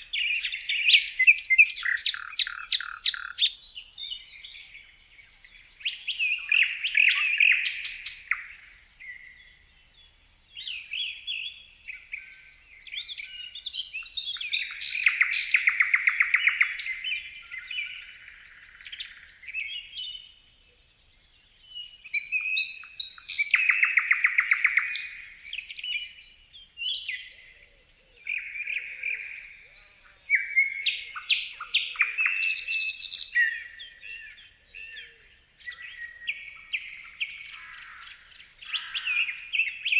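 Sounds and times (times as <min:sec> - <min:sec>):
rapid bird trills: 0:00.0 - 0:03.6
songbirds chirping and singing: 0:00.0 - 0:39.9.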